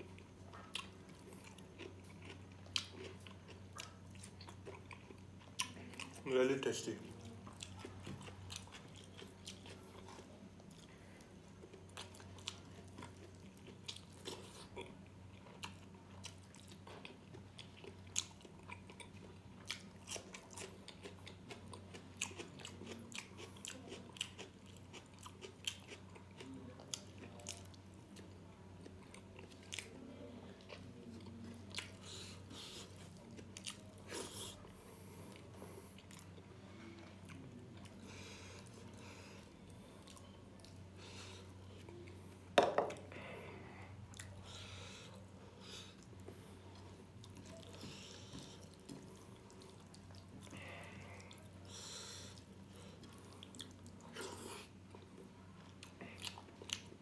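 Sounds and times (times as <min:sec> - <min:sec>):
faint low hum: 0:00.0 - 0:57.0
wet chewing and lip-smacking: 0:00.2 - 0:06.2, 0:07.2 - 0:30.0, 0:45.9 - 0:57.0.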